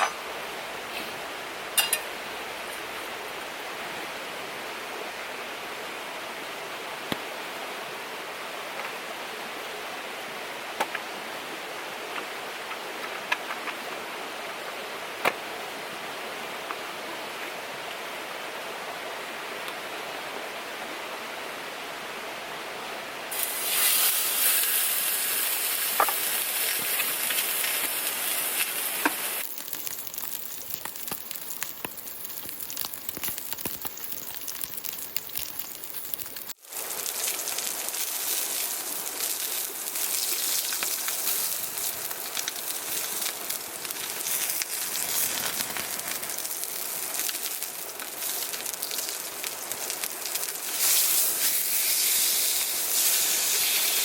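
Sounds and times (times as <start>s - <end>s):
loud hissing sound: 50.7s - 54.0s.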